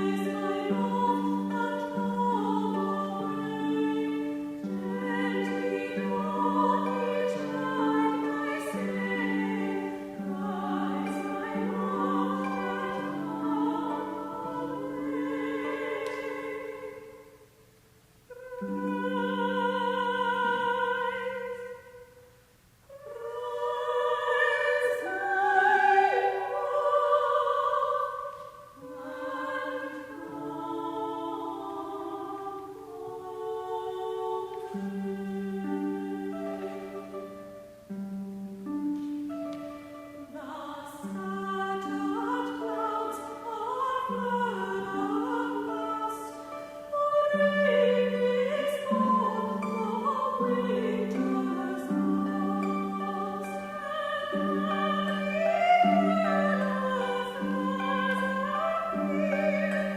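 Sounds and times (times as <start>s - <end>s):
choir singing a hymn: 0.0s - 17.6s, 18.3s - 22.2s, 22.9s - 59.9s.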